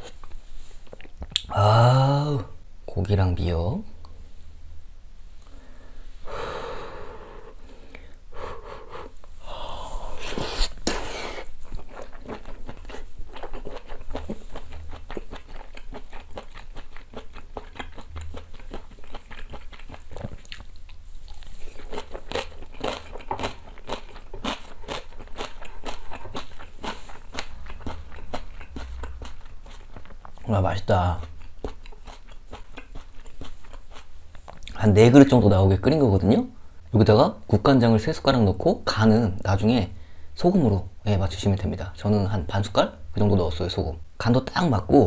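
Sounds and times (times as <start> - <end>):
wet chewing clicks: 11.6 - 30.5, 31.2 - 34.8.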